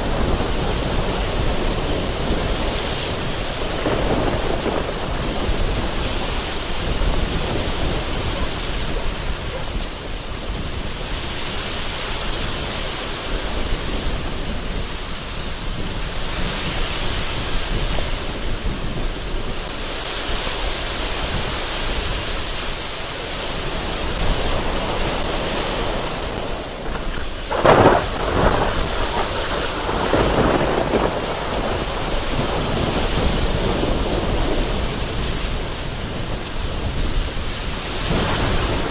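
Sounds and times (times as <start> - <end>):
thunder crack and rumble: 0.0 - 11.5, 23.6 - 38.9
heavy rain pouring: 0.0 - 38.9
strong wind gusts: 0.0 - 38.9.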